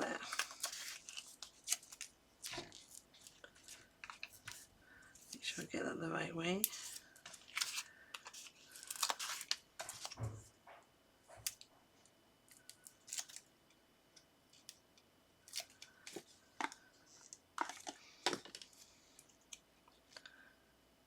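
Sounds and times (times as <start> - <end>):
paper rustling: 0.0 - 5.6, 6.6 - 10.4.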